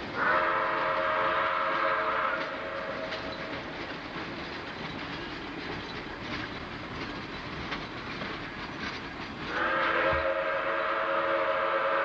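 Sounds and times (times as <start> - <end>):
train coaches rumbling past: 0.0 - 12.0
steam whistle chord: 0.2 - 3.1, 9.5 - 12.0.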